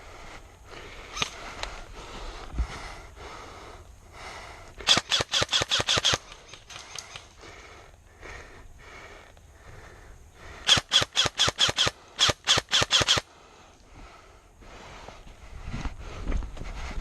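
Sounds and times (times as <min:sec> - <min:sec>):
airsoft gun firing: 0:04.8 - 0:06.8, 0:10.6 - 0:13.3.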